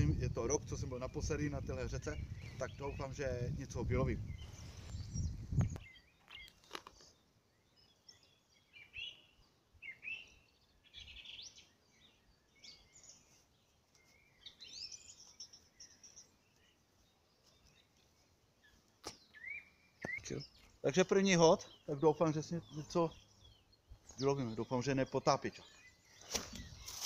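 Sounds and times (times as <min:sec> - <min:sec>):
songbirds chirping: 0:00.0 - 0:27.0.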